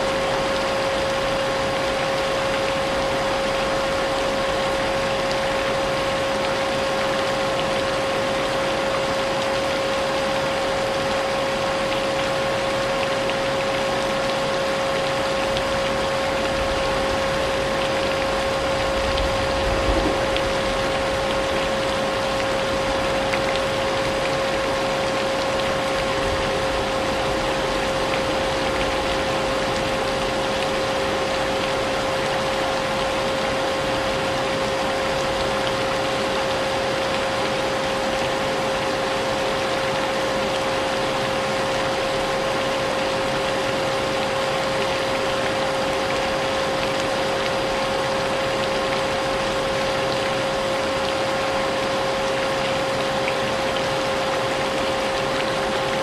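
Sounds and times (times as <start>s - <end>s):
rain hissing: 0.0s - 39.5s.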